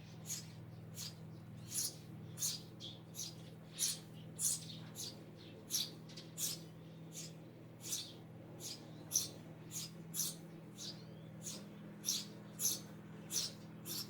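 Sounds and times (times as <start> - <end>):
sparrows chirping: 0.0 - 14.0
steady low hum: 0.0 - 14.0.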